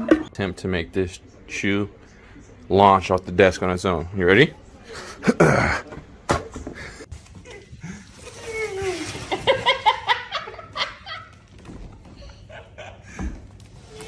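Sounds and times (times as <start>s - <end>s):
people laughing: 9.2s - 11.4s, 12.2s - 13.3s.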